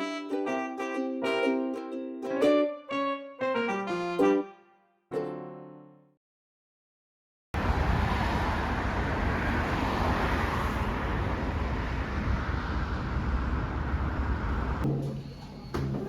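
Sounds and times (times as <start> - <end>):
outdoor ambient rumble: 7.6 - 16.0.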